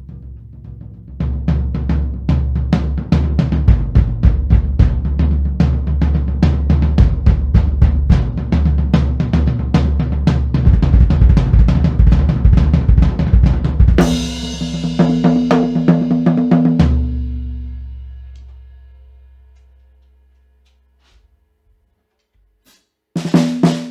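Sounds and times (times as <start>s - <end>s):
bass drum and snare strokes: 0.0s - 21.3s, 22.7s - 23.9s
tom hits: 10.6s - 14.3s.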